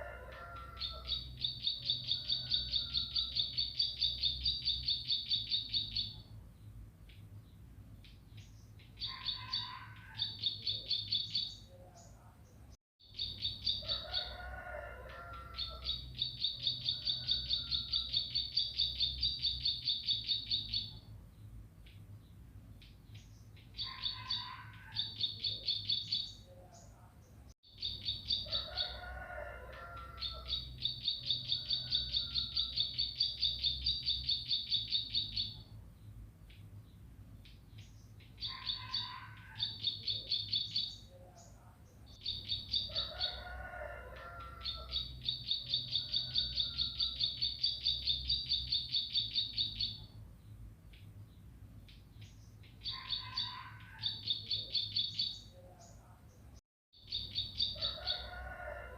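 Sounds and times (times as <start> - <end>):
bird chirping rapidly: 0.8 - 6.2, 13.1 - 14.0, 15.6 - 21.0, 27.7 - 28.8, 30.2 - 35.6, 42.0 - 43.2, 44.6 - 50.1, 57.0 - 58.3.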